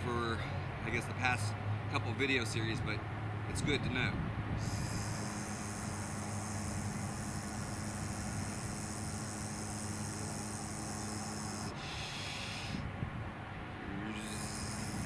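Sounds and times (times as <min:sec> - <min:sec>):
steady hiss: 0:04.6 - 0:12.9.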